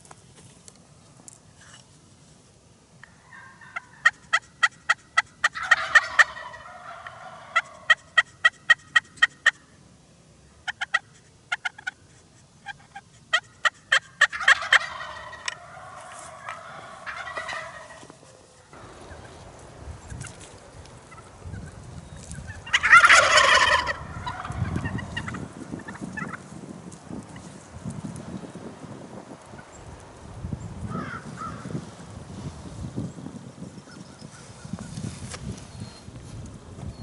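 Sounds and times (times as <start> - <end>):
wild turkeys yelping and gobbling: 3.0 - 9.8, 10.6 - 26.6.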